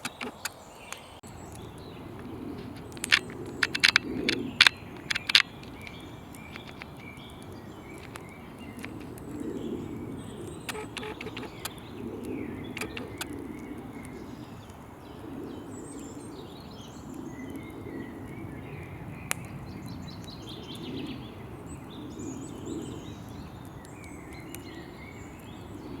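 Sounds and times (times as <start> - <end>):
fire popping: 0.0 - 15.7
birds singing and chirping: 0.0 - 26.0
campfire crackling: 0.0 - 26.0.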